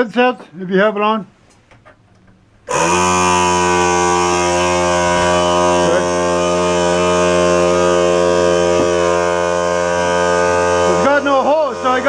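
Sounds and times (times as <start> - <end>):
air compressor humming: 2.6 - 12.0
air blowing out: 2.7 - 12.0.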